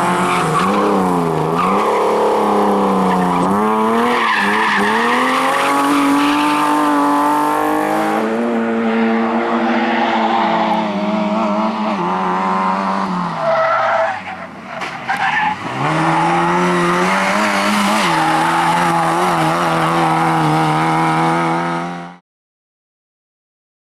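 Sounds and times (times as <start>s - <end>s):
tyres skidding: 0.0s - 22.0s
rally car engine revving: 0.0s - 22.2s.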